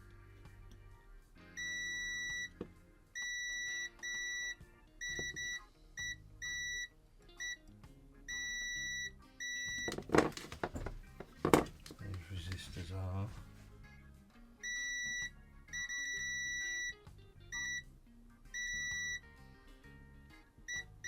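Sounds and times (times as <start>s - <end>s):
continuity tester beeping: 1.6s - 7.6s, 8.3s - 10.4s, 14.6s - 17.9s, 18.6s - 19.3s, 20.7s - 21.0s
knocks: 9.9s - 11.8s.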